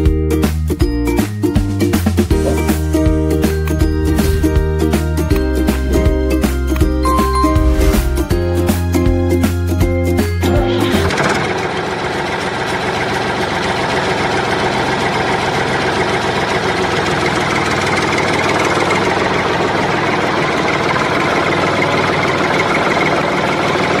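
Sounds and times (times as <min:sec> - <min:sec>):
engine idling: 0:10.8 - 0:24.0.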